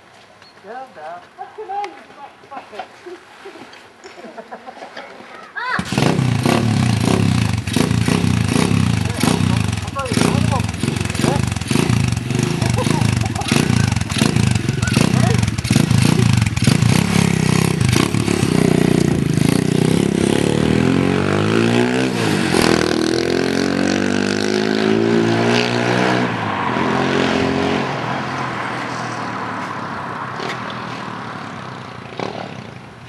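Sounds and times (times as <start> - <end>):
small motorbike engine revving: 5.8 - 26.3, 32.1 - 32.8.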